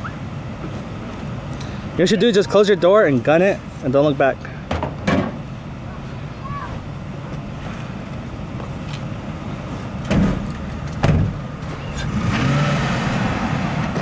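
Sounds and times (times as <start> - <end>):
truck engine revving: 7.6 - 14.0.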